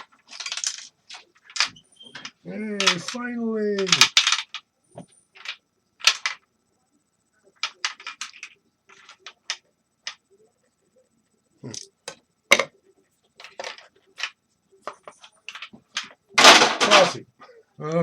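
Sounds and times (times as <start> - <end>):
small hard pieces clicking: 0.0 - 4.7, 5.3 - 6.5, 7.6 - 10.2, 13.4 - 17.1.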